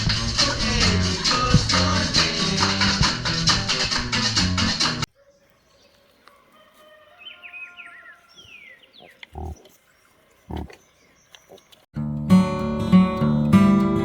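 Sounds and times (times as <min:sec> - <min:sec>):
strummed acoustic guitar music: 0:12.0 - 0:14.0.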